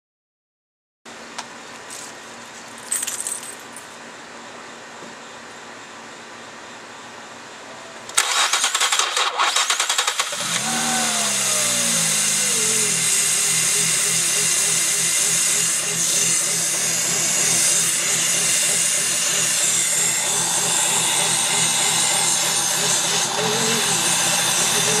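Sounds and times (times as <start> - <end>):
car engine starting and idling: 8.1 - 25.0.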